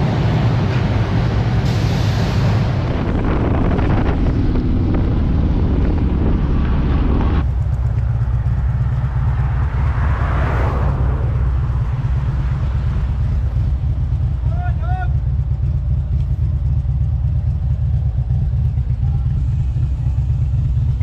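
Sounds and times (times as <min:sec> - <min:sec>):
motorcycle engine rumble: 0:00.0 - 0:21.0
wind rushing over microphone: 0:01.7 - 0:07.5, 0:09.0 - 0:14.0.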